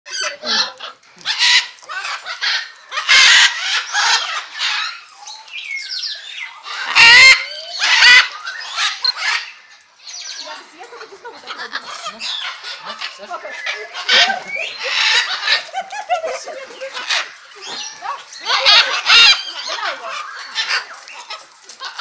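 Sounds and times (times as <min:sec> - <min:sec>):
parrots whistled calls: 0:00.1 - 0:10.4, 0:11.6 - 0:15.7, 0:16.8 - 0:22.0
parrots squawking: 0:00.1 - 0:22.0.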